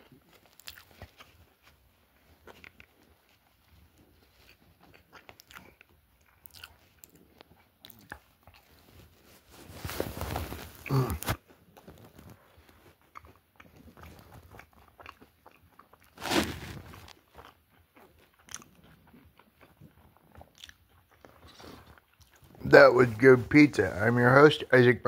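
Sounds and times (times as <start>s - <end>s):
person chewing pizza: 0.0s - 24.1s
small clicks and crunches: 0.1s - 18.9s.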